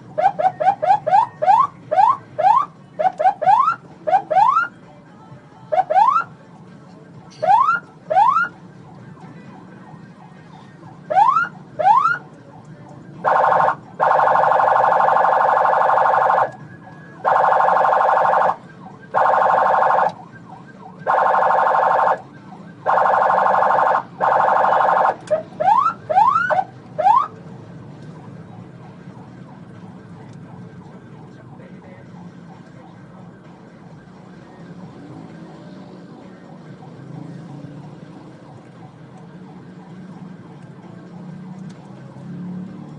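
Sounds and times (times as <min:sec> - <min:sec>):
road noise: 0:00.0 - 0:42.9
police siren whooping: 0:00.1 - 0:04.7, 0:05.7 - 0:06.3, 0:07.4 - 0:08.6, 0:09.5 - 0:12.3, 0:13.2 - 0:27.3, 0:32.4 - 0:41.6
siren buzzing horn blasts: 0:00.2 - 0:04.7, 0:13.2 - 0:16.6, 0:17.2 - 0:20.3, 0:21.0 - 0:22.2, 0:22.8 - 0:27.3.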